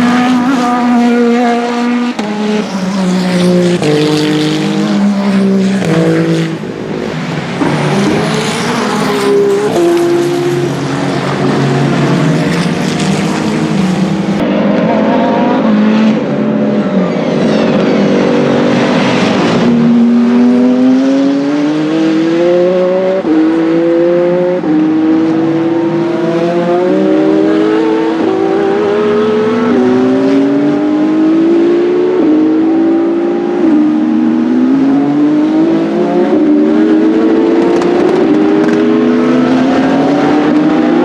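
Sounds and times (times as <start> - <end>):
race car engine accelerating: 0.0 - 41.0.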